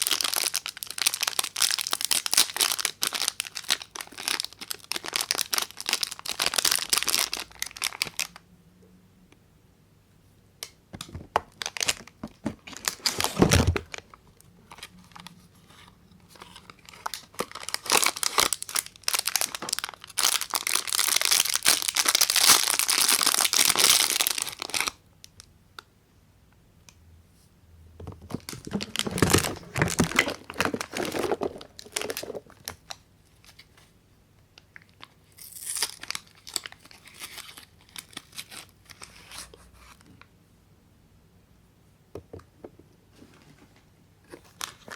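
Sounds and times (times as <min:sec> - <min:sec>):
wrappers crinkling and tearing: 0:00.0 - 0:08.4, 0:11.5 - 0:15.3, 0:16.4 - 0:25.0, 0:28.3 - 0:33.7, 0:34.8 - 0:39.5.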